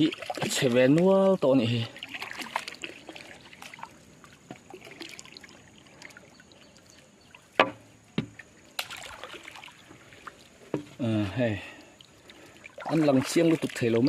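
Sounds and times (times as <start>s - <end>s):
faint river water: 0.0s - 14.0s.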